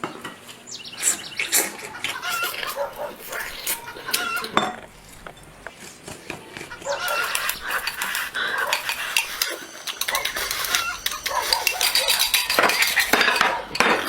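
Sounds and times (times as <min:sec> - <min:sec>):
dishes and cutlery clinking: 0:01.4 - 0:14.0.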